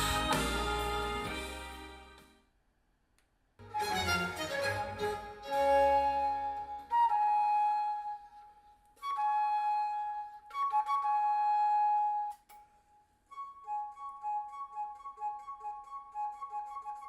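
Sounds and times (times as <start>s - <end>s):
solo melody over car speakers: 0.0s - 2.3s.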